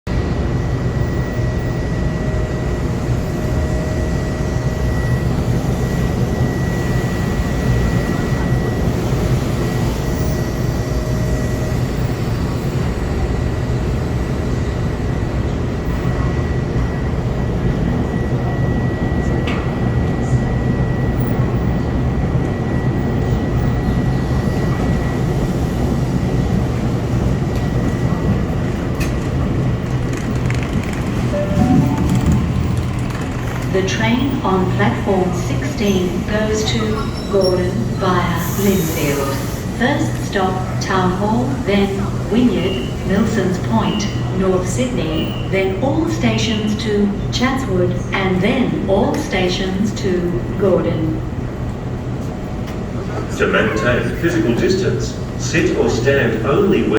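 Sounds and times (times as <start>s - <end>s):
electric train rumble: 0.1s - 56.9s
high-pitched tone: 31.4s - 33.6s.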